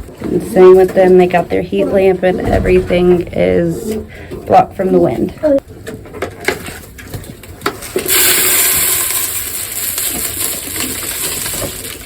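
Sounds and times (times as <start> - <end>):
clicks and knocks: 2.4 - 5.4
grain poured into feeder: 8.0 - 12.0.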